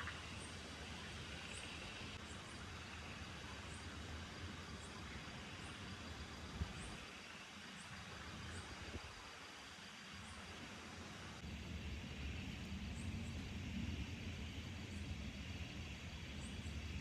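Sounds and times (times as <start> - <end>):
steady rain falling: 11.4 - 17.0.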